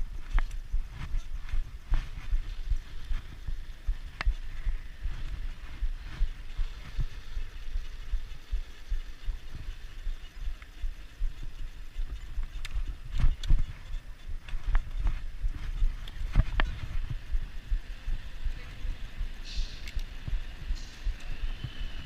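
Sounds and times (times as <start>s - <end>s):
wind rumbling on microphone: 0.0s - 22.0s
sharp clicks: 8.0s - 15.0s, 19.4s - 21.4s.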